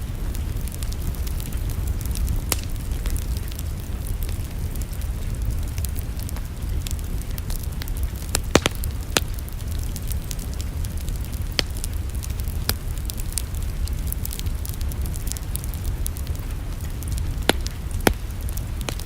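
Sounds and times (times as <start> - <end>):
fireplace fire crackling: 0.0 - 19.0
low fire rumble: 0.0 - 19.0.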